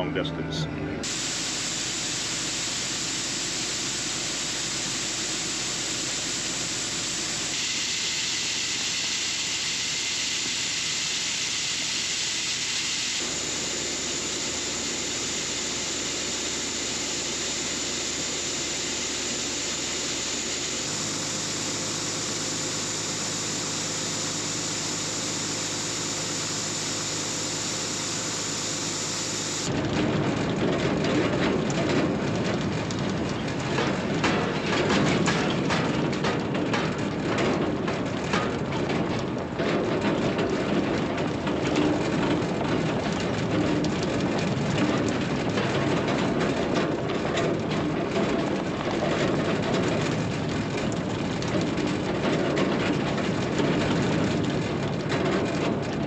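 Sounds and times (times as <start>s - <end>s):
faint engine hum: 0.0s - 7.6s, 13.1s - 35.6s
harvest machinery running: 0.0s - 56.0s.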